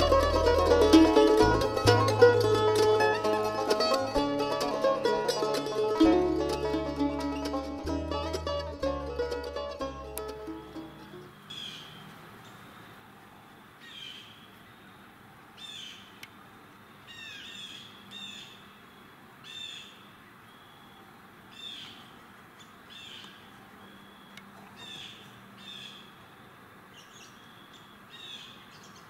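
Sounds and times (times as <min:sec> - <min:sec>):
bird harsh calls: 0:11.0 - 0:13.0, 0:17.1 - 0:26.2.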